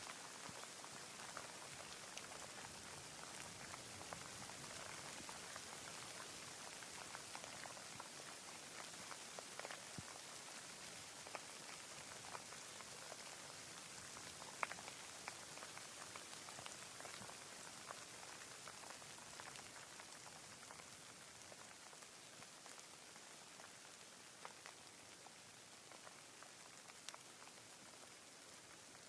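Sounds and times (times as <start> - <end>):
raindrops ticking: 0.0 - 29.0.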